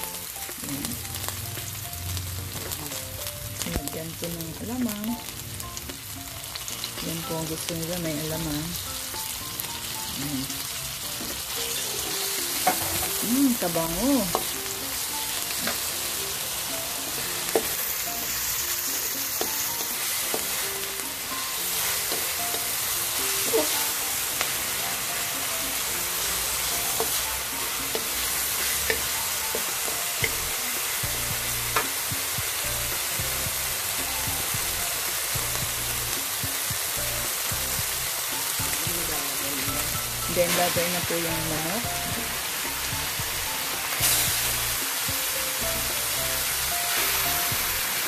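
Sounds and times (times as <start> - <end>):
food sizzling in hot oil: 0.0 - 48.0
spatula tapping pan: 12.5 - 13.2, 14.2 - 14.6, 17.2 - 17.9, 19.2 - 21.2, 25.4 - 33.1.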